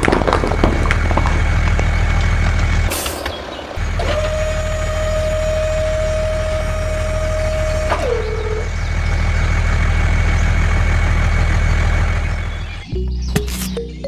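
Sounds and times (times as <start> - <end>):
truck engine rumbling: 0.0 - 14.0.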